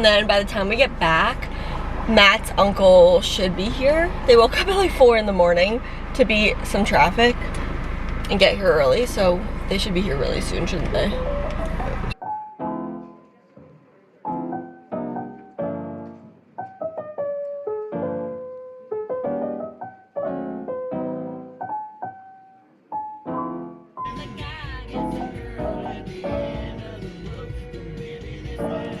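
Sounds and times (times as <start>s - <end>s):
solo piano melody: 10.6s - 27.0s, 27.8s - 29.0s.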